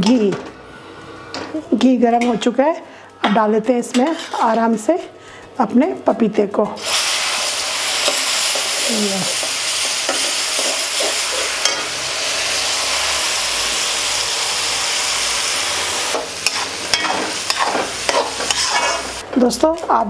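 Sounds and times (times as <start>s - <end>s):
metal spatula scraping a pan: 3.8s - 4.6s, 16.4s - 19.2s
papaya sizzling in hot oil: 6.8s - 19.2s.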